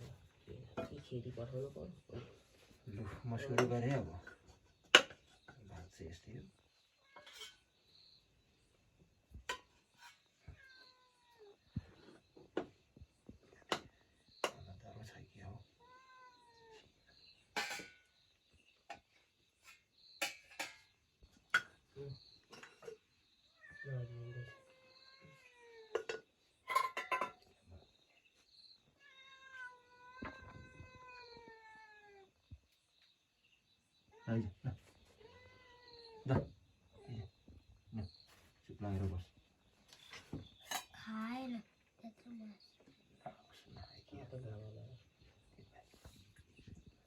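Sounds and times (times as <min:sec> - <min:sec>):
cat meowing: 0:10.4 - 0:11.7, 0:15.8 - 0:16.8, 0:23.6 - 0:26.1, 0:28.9 - 0:32.4, 0:35.2 - 0:36.3.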